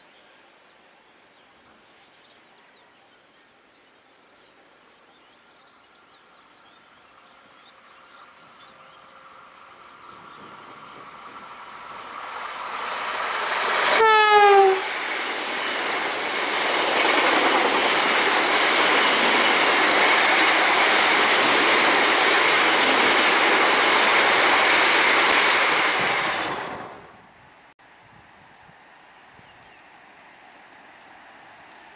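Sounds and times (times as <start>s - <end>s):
train rushing past on rails: 7.4s - 27.6s, 30.0s - 31.9s
train horn blast: 13.9s - 15.0s.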